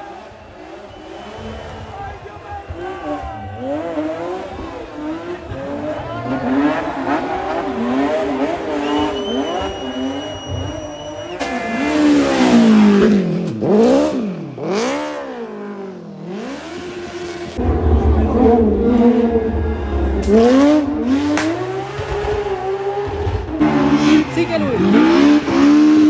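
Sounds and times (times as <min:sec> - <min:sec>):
rally car engines revving: 0:00.0 - 0:26.0
high whistle: 0:00.9 - 0:02.1, 0:08.6 - 0:11.9, 0:17.6 - 0:21.8
car passing close: 0:11.4 - 0:26.0.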